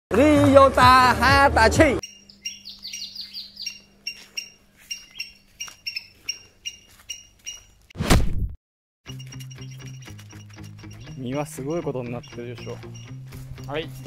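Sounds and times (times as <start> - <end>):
bird chirping: 2.0 - 7.9, 9.1 - 14.0.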